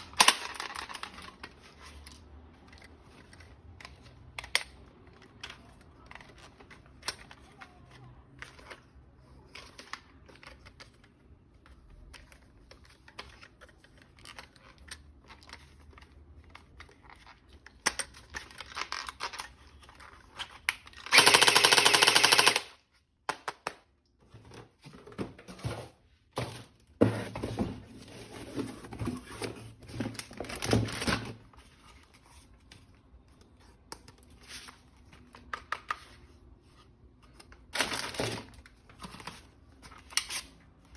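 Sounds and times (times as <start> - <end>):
toy gun clicks: 21.0 - 22.8
rapid toy gun bursts: 21.1 - 22.7.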